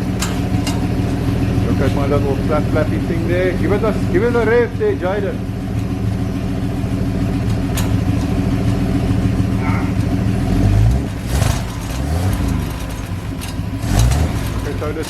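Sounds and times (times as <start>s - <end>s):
car engine running and revving: 0.0s - 15.0s.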